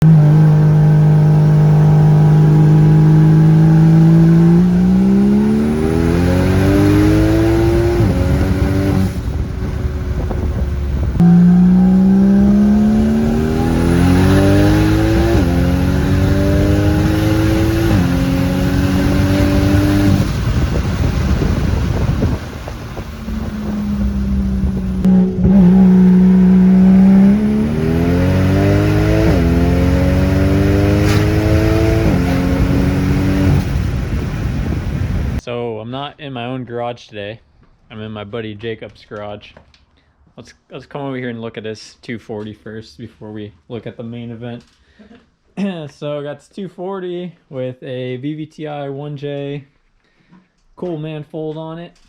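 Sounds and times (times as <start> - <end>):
car engine revving through gears: 0.0 - 35.4.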